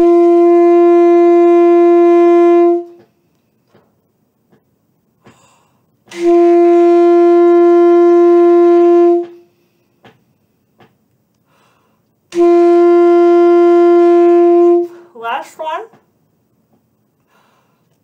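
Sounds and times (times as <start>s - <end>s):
saxophone long tone: 0.0s - 3.1s, 6.1s - 9.5s, 12.3s - 15.0s.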